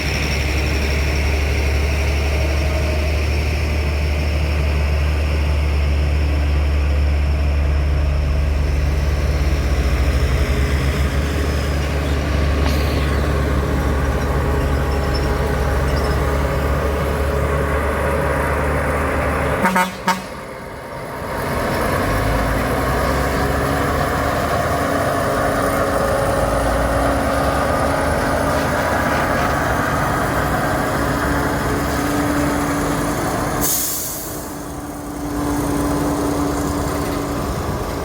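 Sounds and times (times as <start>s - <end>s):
truck engine running: 0.0s - 38.0s
truck horn toots: 19.6s - 20.5s.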